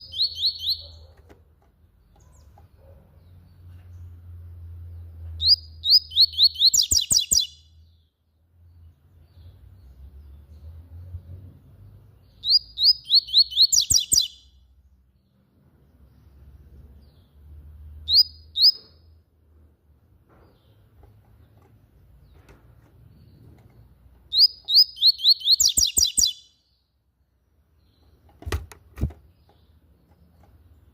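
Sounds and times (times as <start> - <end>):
bird singing whistled notes: 0.0 - 1.1, 5.4 - 8.0, 12.3 - 14.6, 18.0 - 19.1, 24.3 - 26.8.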